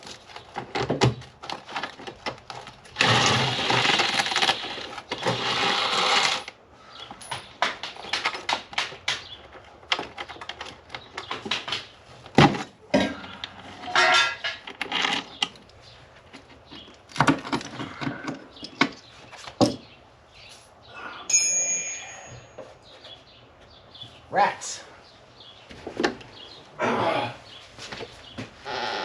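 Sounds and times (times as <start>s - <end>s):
metal tools clattering: 13.0s - 15.4s
short metallic ring: 21.3s - 22.7s.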